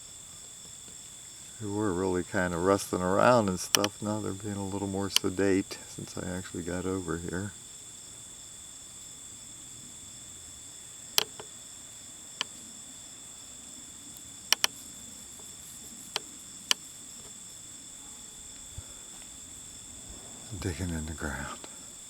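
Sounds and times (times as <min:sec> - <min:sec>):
insects trilling: 0:00.0 - 0:22.0
sharp clicks: 0:03.6 - 0:04.1, 0:11.1 - 0:11.6, 0:14.1 - 0:17.4.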